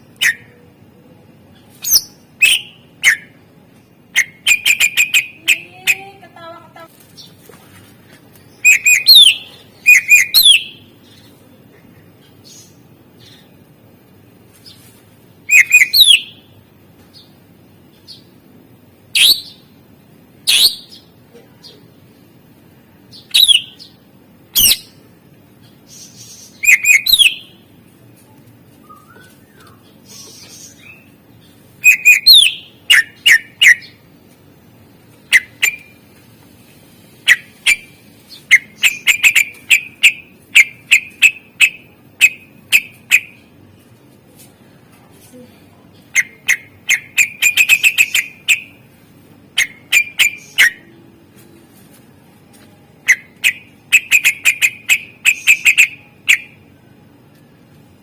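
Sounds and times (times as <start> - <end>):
bird singing whistled chirps: 1.8 - 3.3, 4.2 - 5.4, 8.6 - 10.8, 15.5 - 16.4, 23.3 - 23.8, 26.6 - 27.5, 28.8 - 31.1, 31.8 - 34.0.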